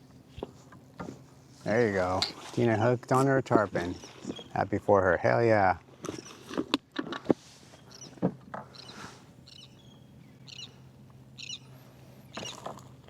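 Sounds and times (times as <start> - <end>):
bird chirping: 7.8 - 10.8, 11.4 - 12.7.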